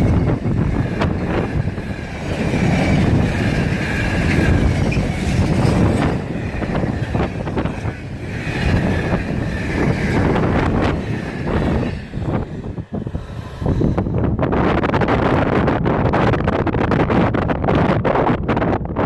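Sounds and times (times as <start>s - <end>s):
sharp train wheel clicks: 0.0s - 14.0s
freight train wheels rumbling: 0.0s - 19.0s.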